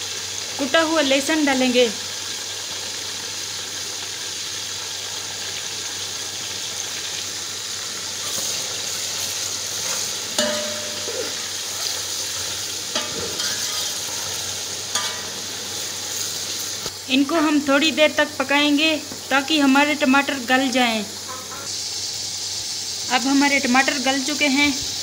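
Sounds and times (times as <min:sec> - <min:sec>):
vegetables sizzling in a pot: 0:00.0 - 0:25.0
metal ladle stirring: 0:09.2 - 0:15.4.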